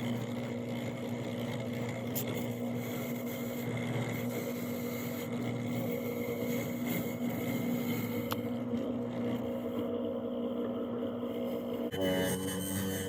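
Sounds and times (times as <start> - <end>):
electric motor humming: 0.0 - 13.0.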